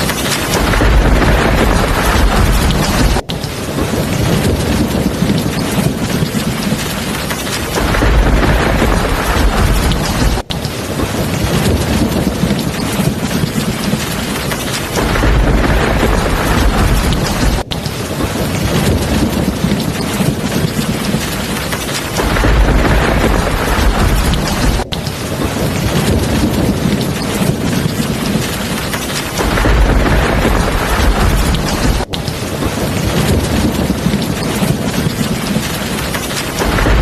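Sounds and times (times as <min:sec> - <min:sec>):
deep thunder rumbles: 0:00.0 - 0:37.0
heavy rain falling: 0:00.0 - 0:37.0.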